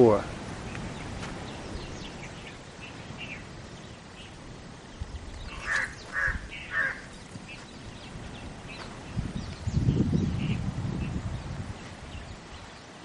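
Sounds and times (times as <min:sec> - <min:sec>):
bird calls: 0:00.0 - 0:13.0
faint small birds chirping: 0:00.0 - 0:13.0.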